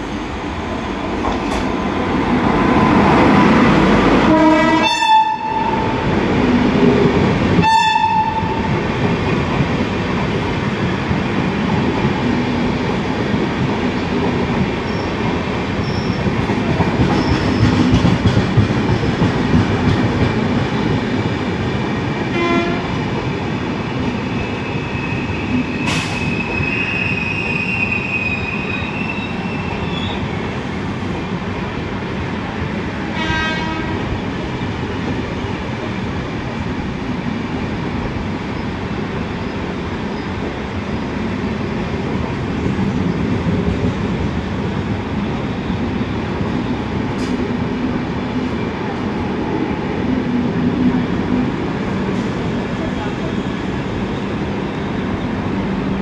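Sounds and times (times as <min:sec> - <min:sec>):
train passing at speed: 0:00.0 - 0:56.0
wheels rumbling and clattering on rail: 0:00.0 - 0:56.0
locomotive horn: 0:04.2 - 0:05.9, 0:07.6 - 0:08.6, 0:22.3 - 0:23.0, 0:33.1 - 0:34.1
high wheel squeal: 0:24.2 - 0:30.2.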